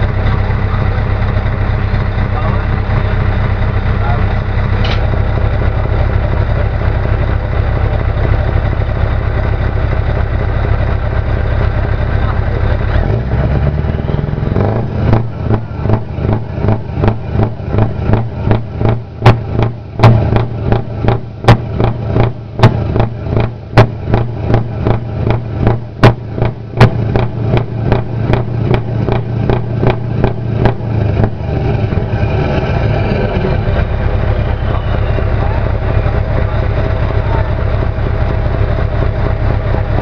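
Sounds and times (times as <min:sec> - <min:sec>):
engine cracks: 0:00.0 - 0:08.8
diesel truck engine revving: 0:00.0 - 0:40.0.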